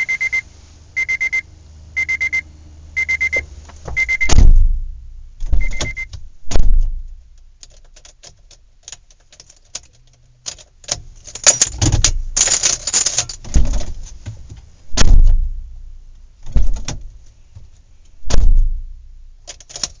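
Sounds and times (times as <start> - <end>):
heavy thuds: 3.7 - 7.4, 13.4 - 19.4
hardware knocking and rattling: 10.6 - 15.6.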